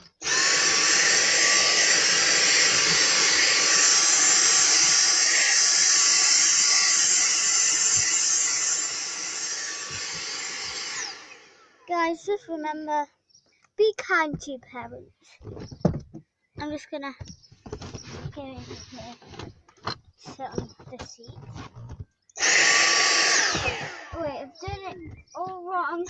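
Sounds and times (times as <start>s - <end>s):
vacuum cleaner running: 0.0s - 11.7s, 22.4s - 24.4s.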